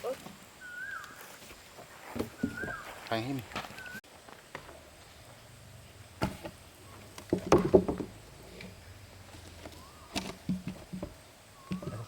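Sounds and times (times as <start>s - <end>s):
sharp knocks and clunks: 6.2s - 8.8s, 10.1s - 12.0s.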